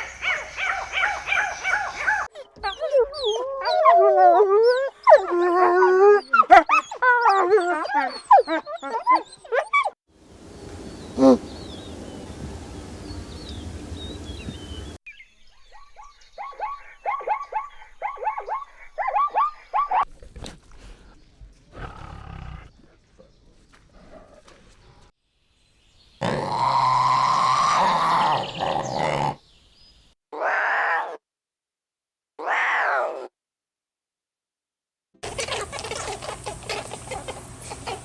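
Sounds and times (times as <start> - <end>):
long loud animal call: 26.2 - 29.4.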